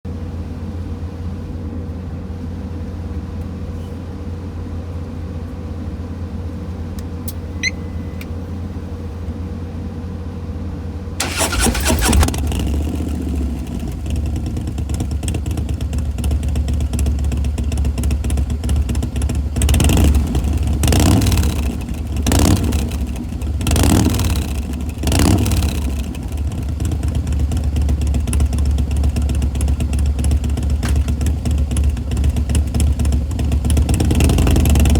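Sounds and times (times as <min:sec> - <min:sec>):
motorcycle throttle blips: 0:07.2 - 0:08.4, 0:11.2 - 0:34.9
motorcycle engine idling: 0:11.2 - 0:34.9.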